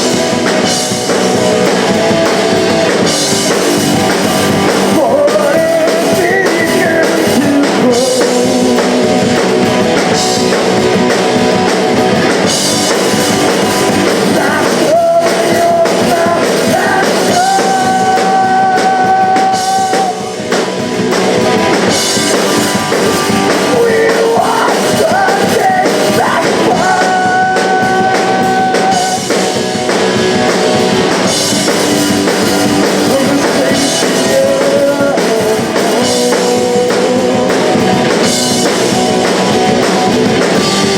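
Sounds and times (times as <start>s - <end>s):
drum kit: 0.0s - 40.9s
electric guitar: 0.0s - 40.9s
person singing: 4.2s - 10.6s, 13.9s - 20.9s, 22.8s - 29.7s, 32.4s - 39.8s.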